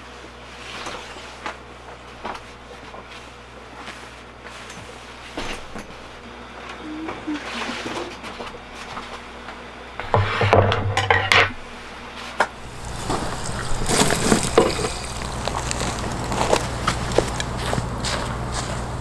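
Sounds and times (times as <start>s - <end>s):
dishes clattering: 10.1s - 11.5s.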